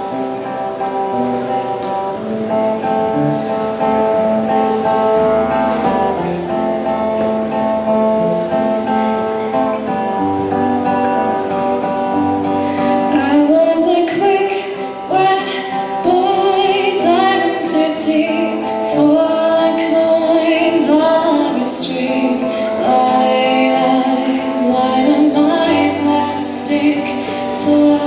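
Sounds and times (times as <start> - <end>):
acoustic guitar playing: 0.0 - 28.0
person singing: 12.4 - 28.0.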